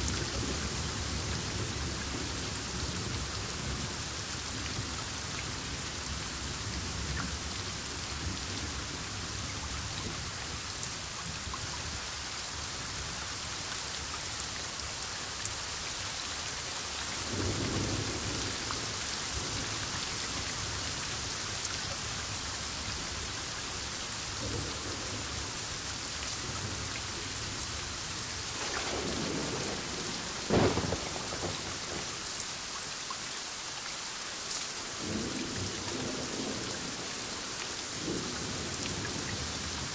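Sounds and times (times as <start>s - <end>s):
heavy rain falling: 0.0s - 39.9s
low rumble of thunder: 17.2s - 20.5s, 24.4s - 25.6s, 28.2s - 32.3s
sharp close thunderclap: 28.5s - 32.2s.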